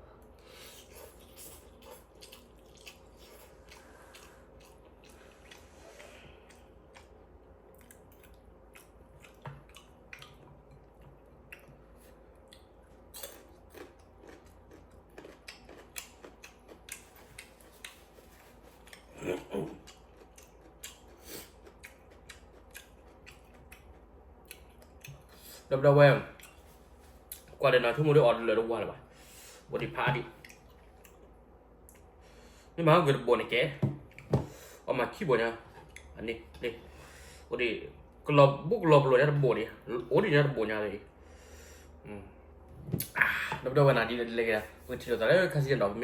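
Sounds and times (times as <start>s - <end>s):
chewing noodles: 0.6s - 25.4s.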